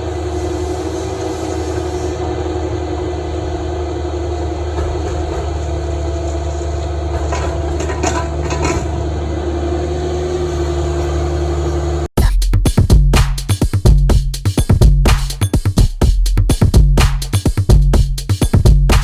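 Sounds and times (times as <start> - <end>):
excavator diesel engine running: 0.0 - 12.2.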